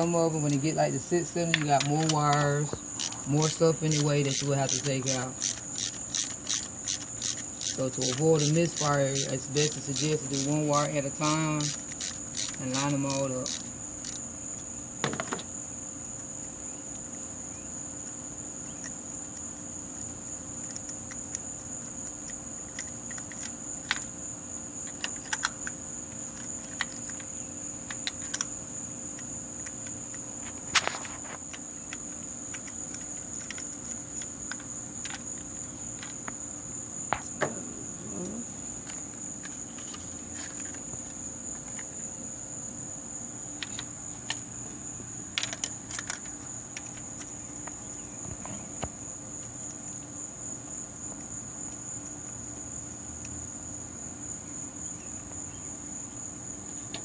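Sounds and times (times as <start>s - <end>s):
hand tools clicking and clinking: 1.5s - 14.2s.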